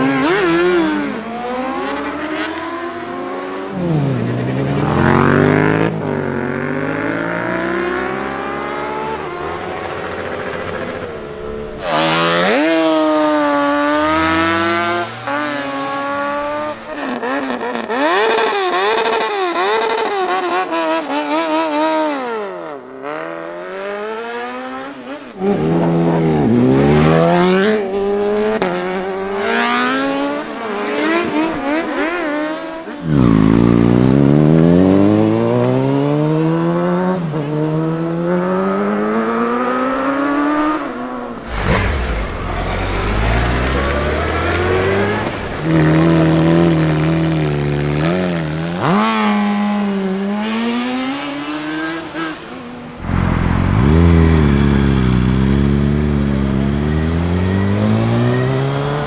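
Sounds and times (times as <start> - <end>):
motorcycle engines accelerating: 0.0 - 59.0.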